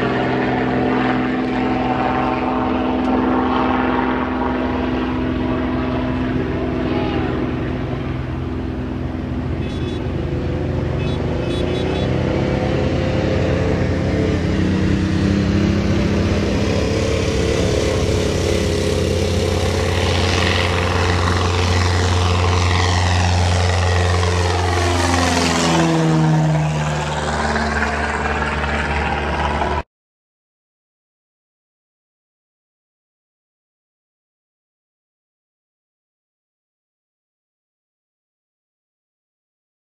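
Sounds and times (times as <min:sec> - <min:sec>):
propeller airplane flying past: 0:00.0 - 0:29.9.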